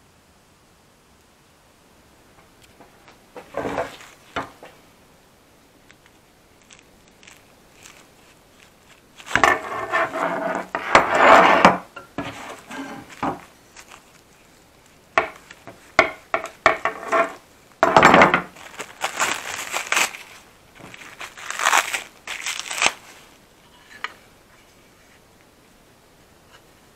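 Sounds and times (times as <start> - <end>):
scraping on wooden chair parts: 2.7 - 4.8, 9.2 - 13.5, 15.2 - 19.3
wood and tools knocking: 3.4 - 4.8, 9.3 - 13.5, 15.2 - 18.5.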